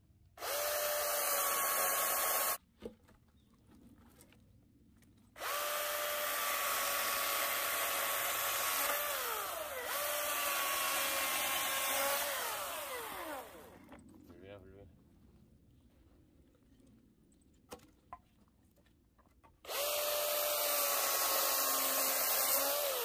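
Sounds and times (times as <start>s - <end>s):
electric chainsaw whine: 0.4s - 2.6s, 5.4s - 13.9s, 19.7s - 23.0s.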